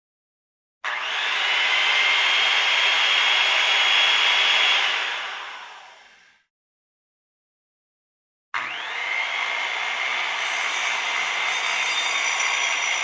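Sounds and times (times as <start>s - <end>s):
electric saw whining: 8.6s - 13.0s.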